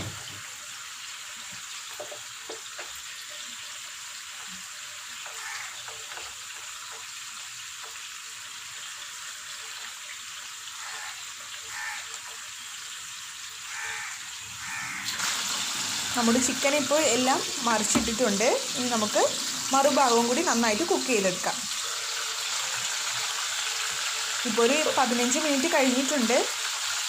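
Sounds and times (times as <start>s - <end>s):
chicken sizzling in oil: 0.0s - 27.0s
faint knocks in pan: 17.8s - 18.2s.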